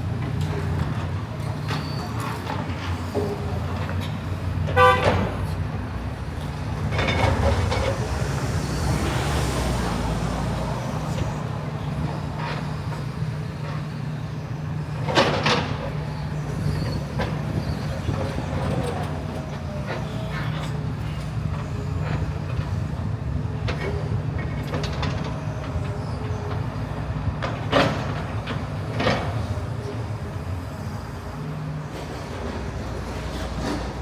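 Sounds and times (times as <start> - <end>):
low engine hum of traffic: 0.0 - 34.0
vehicle horn toot: 4.8 - 5.4.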